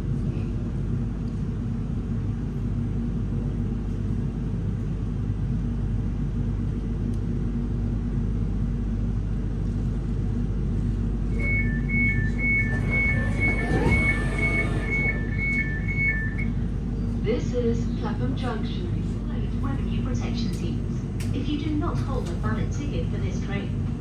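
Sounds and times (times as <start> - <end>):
train interior low hum: 0.0 - 24.0
two-tone door warning beeps: 11.3 - 16.7
rising whine: 11.4 - 16.6.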